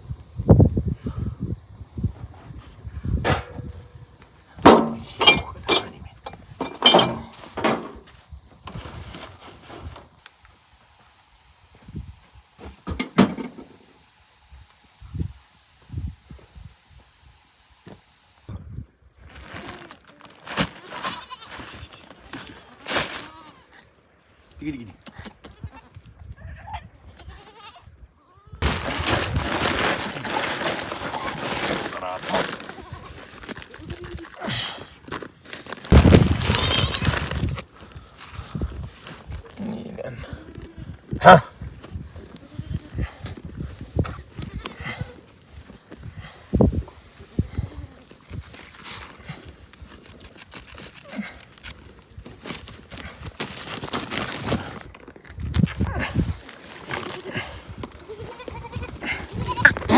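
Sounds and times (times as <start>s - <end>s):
dishes and glassware clinking: 4.7s - 6.0s, 6.6s - 7.4s
herd animals bleating: 58.1s - 59.9s.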